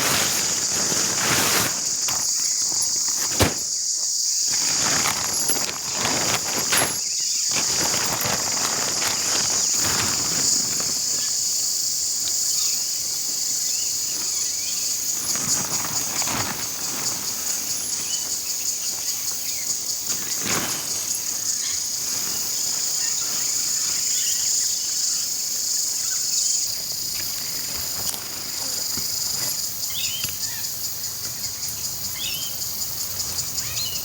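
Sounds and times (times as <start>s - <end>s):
footsteps: 0.0s - 3.8s, 4.5s - 11.0s
rustling: 0.0s - 26.0s, 26.6s - 32.2s
insects chirring: 0.0s - 34.0s
knock of camp gear: 1.8s - 3.8s.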